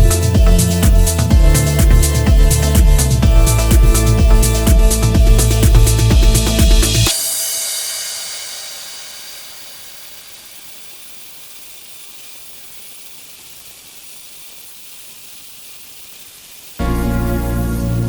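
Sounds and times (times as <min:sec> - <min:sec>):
background music: 0:00.0 - 0:07.9, 0:16.8 - 0:18.0
steady high hiss: 0:00.0 - 0:18.0.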